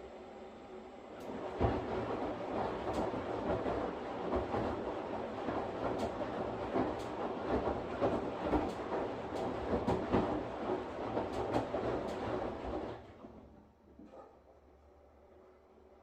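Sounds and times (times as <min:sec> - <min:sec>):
washing machine drum churning: 0:01.2 - 0:13.4.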